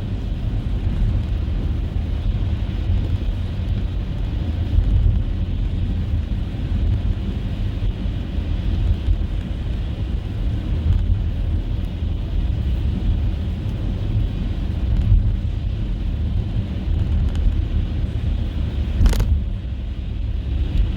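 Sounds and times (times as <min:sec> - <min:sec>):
car engine and tyre rumble: 0:00.0 - 0:20.9.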